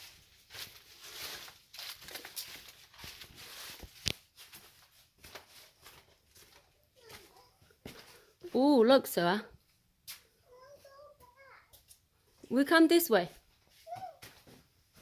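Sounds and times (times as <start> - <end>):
rustling: 0.0 - 8.4
footsteps on dirt and rock trail: 0.0 - 9.0, 13.3 - 15.0.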